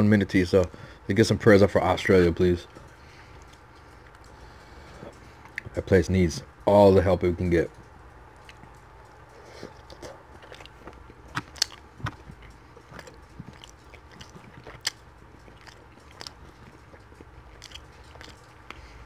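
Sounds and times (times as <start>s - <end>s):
person chewing food: 2.2s - 5.8s, 8.2s - 19.0s.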